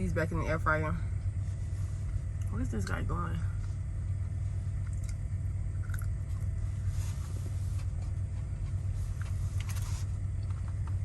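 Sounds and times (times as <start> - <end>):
rustling: 6.7 - 10.3.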